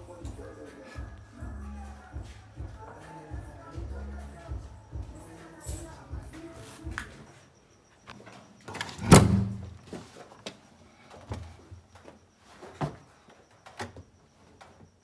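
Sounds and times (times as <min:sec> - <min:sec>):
door shutting with heavy thump: 0:08.9 - 0:09.6.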